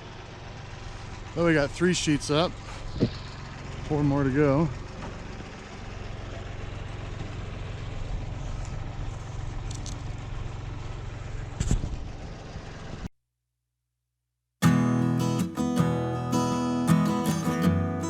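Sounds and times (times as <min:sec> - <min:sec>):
engine idling: 0:00.0 - 0:13.1
acoustic guitar strumming: 0:14.6 - 0:18.0.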